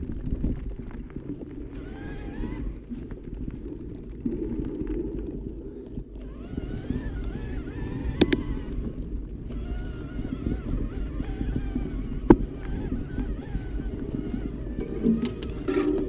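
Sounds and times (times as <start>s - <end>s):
electric motor whine: 0.0s - 4.8s, 6.0s - 16.0s
tyres rumbling on trail: 0.0s - 16.0s
wind on microphone: 0.0s - 16.0s
sharp clicks: 8.0s - 8.9s.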